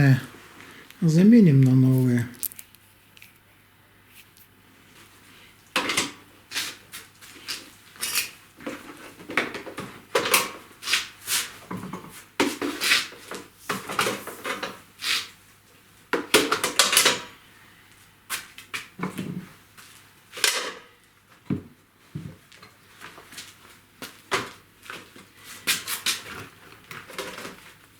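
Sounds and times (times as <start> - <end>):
metal bolts and tools clinking: 8.0 - 8.4.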